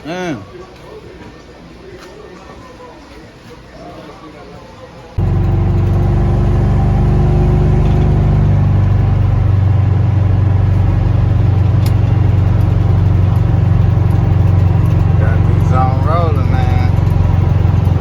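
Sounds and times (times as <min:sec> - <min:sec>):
vehicle engine rumbling: 0:05.2 - 0:18.0.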